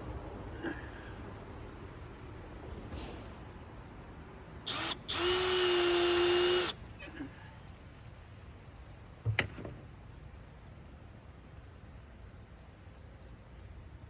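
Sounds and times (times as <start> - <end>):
power drill whirring: 4.7 - 6.8
knock: 9.2 - 9.8.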